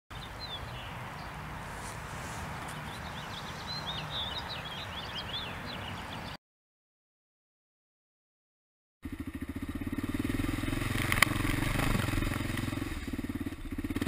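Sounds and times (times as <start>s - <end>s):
songbirds chirping: 0.1s - 6.4s
low outdoor rumble: 9.0s - 14.0s.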